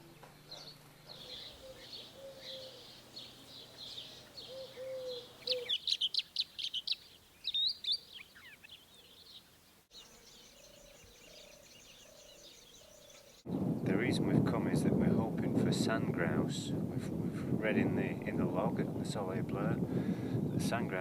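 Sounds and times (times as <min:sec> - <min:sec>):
songbird singing: 0:00.0 - 0:13.8.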